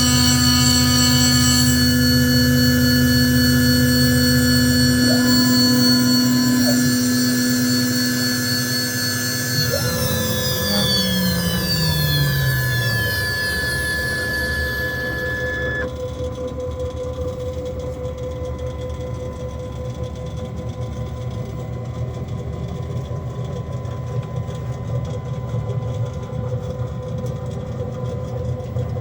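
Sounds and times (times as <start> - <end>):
high machine whine: 0.0 - 16.2
machine hum with held tone: 0.0 - 29.0.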